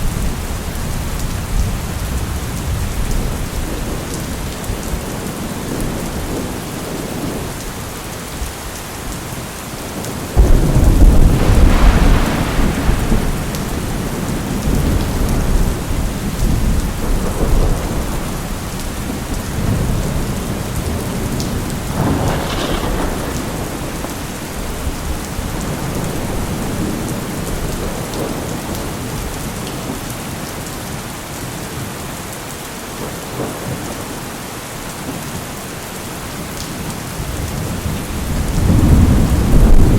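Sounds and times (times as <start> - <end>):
steady rain: 0.0 - 39.9
thunder rumbling: 9.9 - 29.4, 37.2 - 39.9
sharp crack of thunder: 10.4 - 28.6, 37.4 - 39.9.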